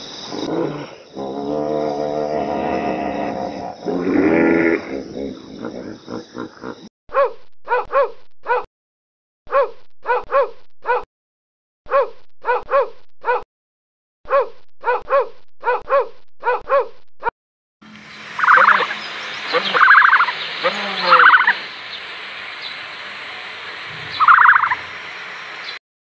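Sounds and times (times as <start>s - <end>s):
small dog barking: 7.2s - 8.7s, 11.9s - 13.4s, 14.3s - 16.9s
background hiss: 17.9s - 25.8s.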